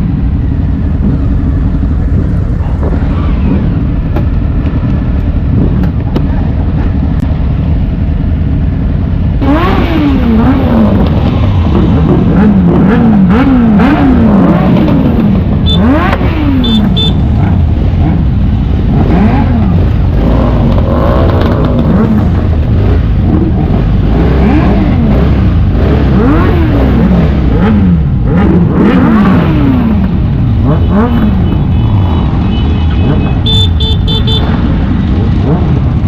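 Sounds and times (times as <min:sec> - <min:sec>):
wind rumble: 0:00.0 - 0:16.4
motorcycle engines revving: 0:00.0 - 0:36.0.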